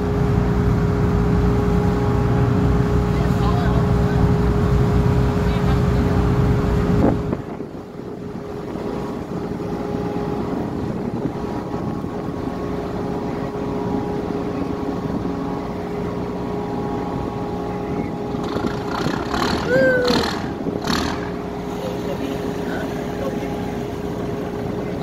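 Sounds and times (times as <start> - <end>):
low engine rumble: 0.0 - 25.0
ship engine humming: 0.0 - 25.0
wind noise on microphone: 3.9 - 21.7.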